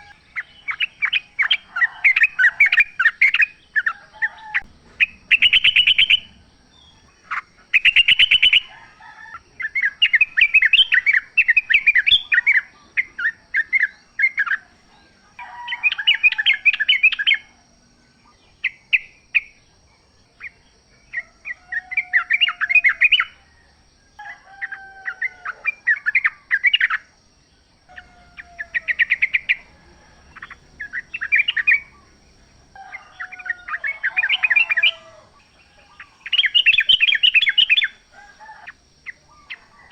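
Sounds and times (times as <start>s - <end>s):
bulbuls singing chattering notes: 0.0s - 23.4s, 24.6s - 39.9s
faint steady high tone: 27.6s - 39.9s.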